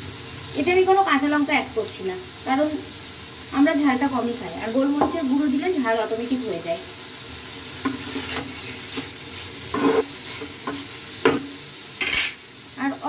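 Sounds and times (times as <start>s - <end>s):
vegetables sizzling in a pan: 0.0s - 13.0s
spatula scraping and knocking pan: 7.8s - 12.4s.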